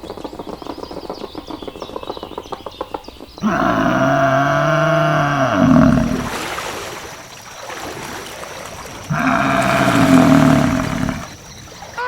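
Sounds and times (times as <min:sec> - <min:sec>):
cow mooing: 0:03.4 - 0:06.4, 0:09.1 - 0:11.4.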